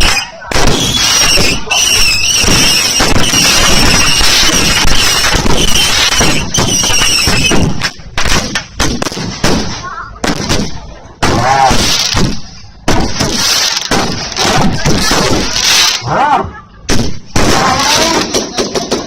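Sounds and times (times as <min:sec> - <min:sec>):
fireworks whistle: 0:00.0 - 0:07.9
fireworks crackling: 0:00.0 - 0:16.1, 0:16.7 - 0:19.0
fireworks bangs: 0:00.0 - 0:19.0.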